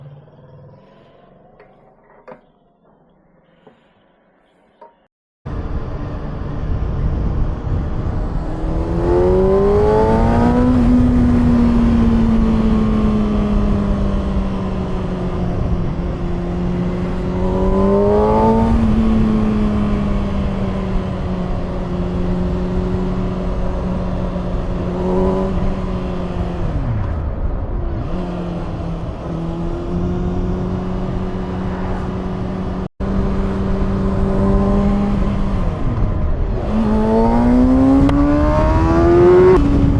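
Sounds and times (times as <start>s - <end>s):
motorcycle engine revving: 4.9s - 39.9s.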